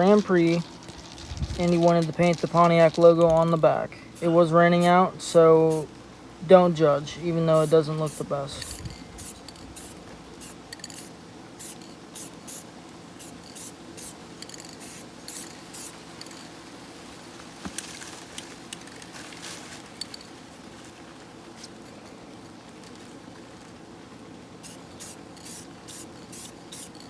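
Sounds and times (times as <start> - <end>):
steady low background hiss: 0.0 - 27.0
short hissing spray strokes: 4.2 - 5.9, 7.5 - 16.0, 24.6 - 27.0.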